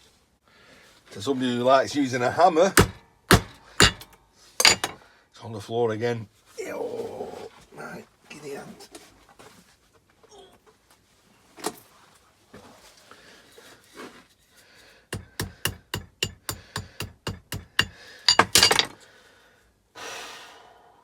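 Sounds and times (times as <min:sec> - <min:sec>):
hammer striking metal: 0:02.8 - 0:05.0, 0:15.2 - 0:18.8.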